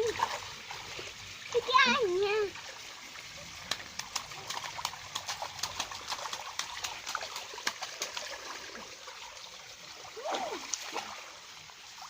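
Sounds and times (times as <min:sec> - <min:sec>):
sharp water splashes and drips: 0:00.0 - 0:12.0
water trickling in a stream: 0:00.0 - 0:12.0.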